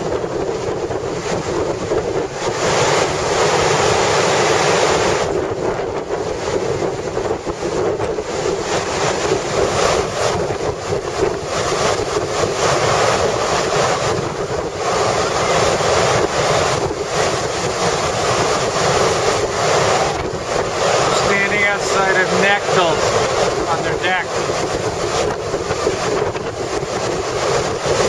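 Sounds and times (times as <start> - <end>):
wind buffeting the microphone: 0.0 - 28.0.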